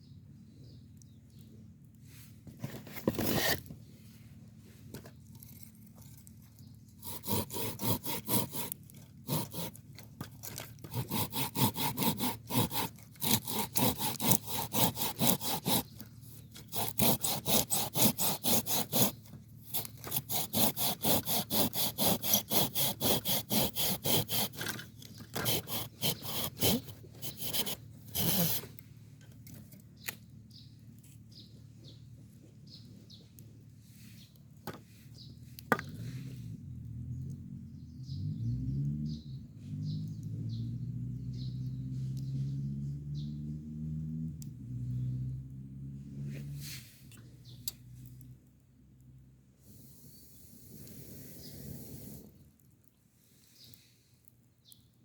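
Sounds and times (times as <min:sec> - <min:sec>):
hand saw cutting wood: 0:02.8 - 0:03.7, 0:07.0 - 0:28.8.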